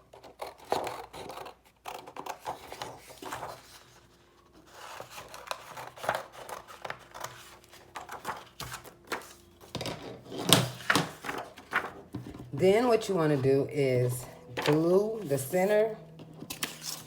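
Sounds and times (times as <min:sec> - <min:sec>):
paper rustling: 0:02.2 - 0:13.6, 0:14.6 - 0:15.5, 0:16.5 - 0:17.0.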